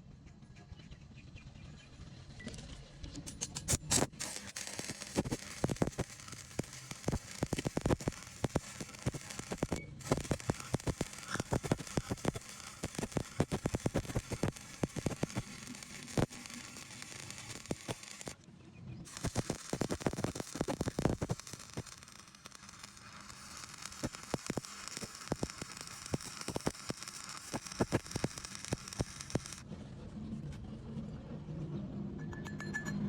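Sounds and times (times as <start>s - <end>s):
arc welding crackling and popping: 3.4s - 18.4s, 19.1s - 29.6s.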